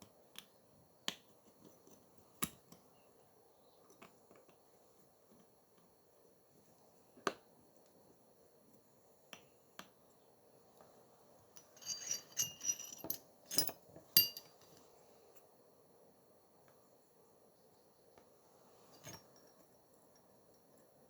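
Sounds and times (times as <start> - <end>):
small tools clicking and clinking: 11.6 - 14.9.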